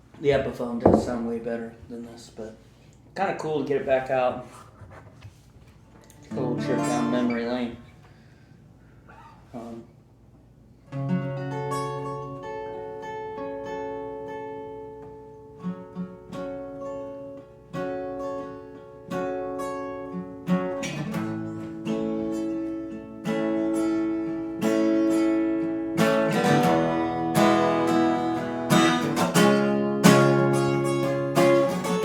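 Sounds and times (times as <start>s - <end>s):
acoustic guitar strummed: 6.2s - 8.4s, 10.9s - 32.0s.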